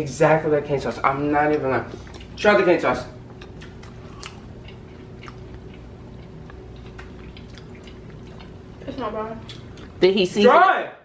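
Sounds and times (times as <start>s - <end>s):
faint hum: 0.0s - 11.0s
crunchy chewing: 3.3s - 10.0s.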